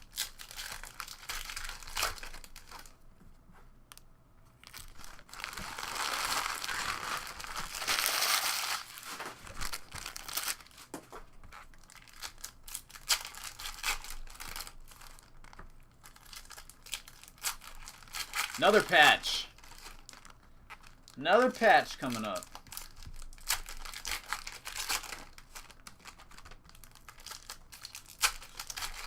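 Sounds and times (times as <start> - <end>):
wrappers crinkling: 0.0 - 3.0, 4.6 - 29.0
foil packs tearing: 4.7 - 10.8, 11.8 - 15.3, 22.1 - 29.0.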